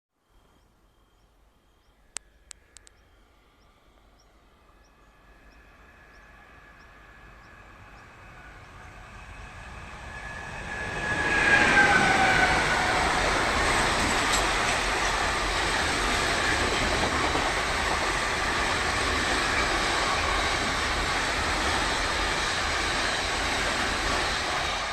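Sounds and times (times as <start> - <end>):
sharp clicks: 2.1 - 3.0
train whine: 3.1 - 24.9
train rumble: 4.6 - 24.9.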